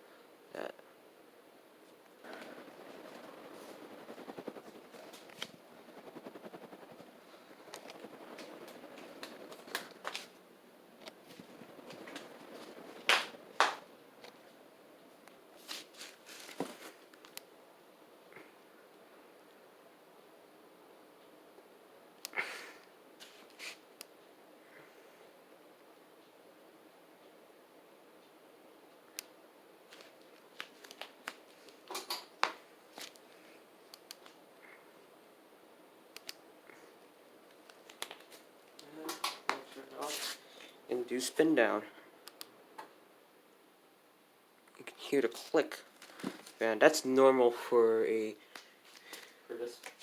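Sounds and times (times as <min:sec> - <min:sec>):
faint steady hum: 0:00.0 - 0:50.0
soft rustles: 0:01.8 - 0:17.2, 0:23.2 - 0:23.8, 0:36.7 - 0:41.8
light irregular clicks: 0:36.1 - 0:36.4, 0:42.2 - 0:42.9.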